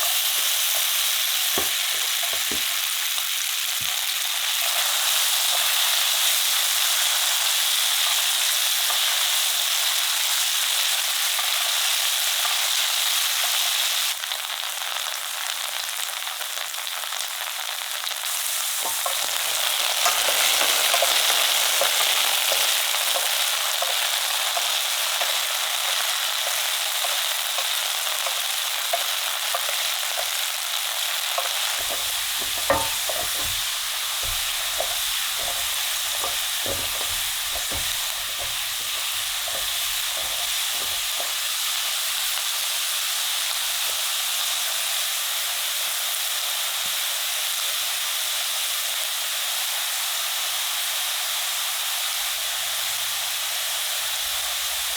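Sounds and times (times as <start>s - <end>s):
potatoes sizzling in a pan: 0.0s - 54.9s
utensil scraping a pan: 18.6s - 24.1s, 31.4s - 42.4s.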